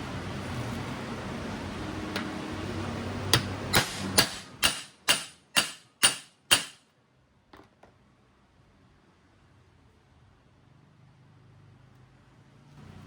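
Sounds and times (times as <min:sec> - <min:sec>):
hammer blows on metal: 0:03.3 - 0:06.8.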